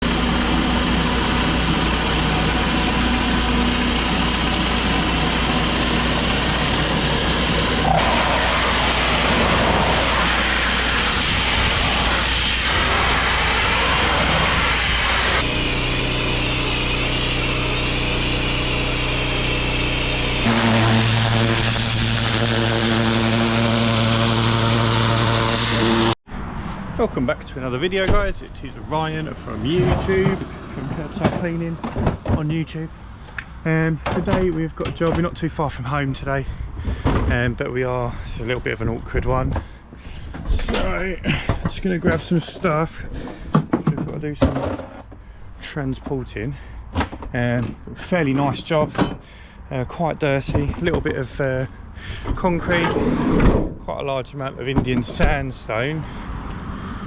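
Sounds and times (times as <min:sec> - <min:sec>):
high-pressure water jet hissing: 0:00.0 - 0:26.2
pressure washer engine running: 0:00.0 - 0:26.2.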